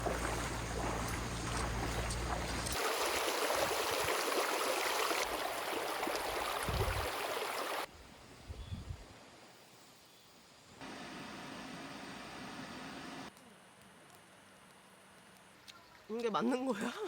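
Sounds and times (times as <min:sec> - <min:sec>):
stream water rushing: 0:00.0 - 0:07.9.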